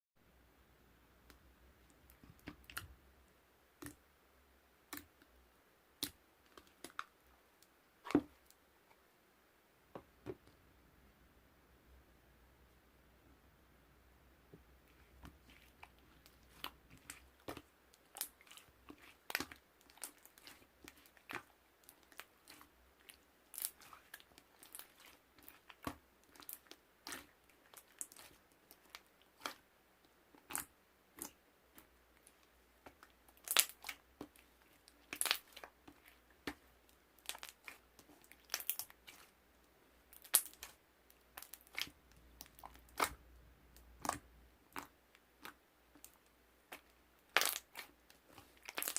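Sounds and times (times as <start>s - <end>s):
crisp crunching and crackling: 33.4s - 36.6s, 37.2s - 39.3s, 40.1s - 40.8s, 44.8s - 48.9s.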